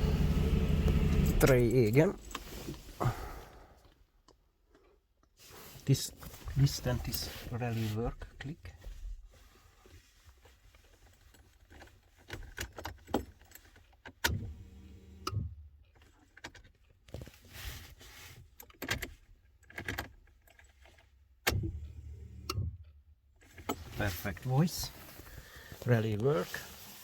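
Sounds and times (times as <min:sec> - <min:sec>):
fuel pump low hum: 0:00.0 - 0:03.8.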